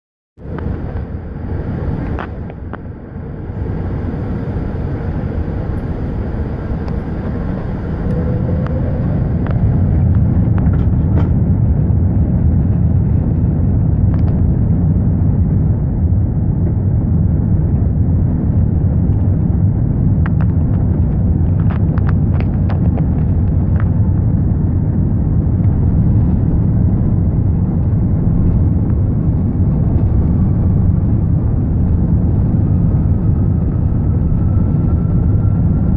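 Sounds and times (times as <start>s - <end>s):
airliner engines rumbling: 0.4s - 35.9s.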